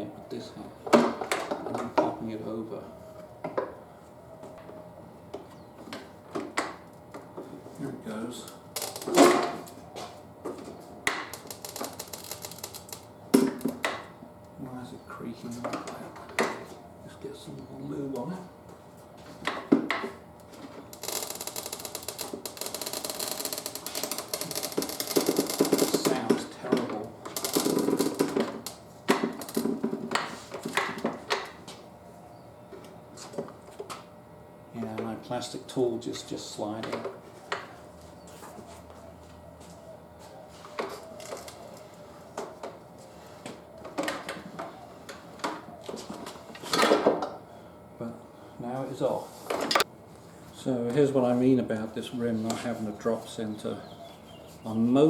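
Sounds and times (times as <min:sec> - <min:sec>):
tyre bead creaking on rim: 0:11.3 - 0:13.0, 0:20.9 - 0:26.2, 0:27.3 - 0:28.8.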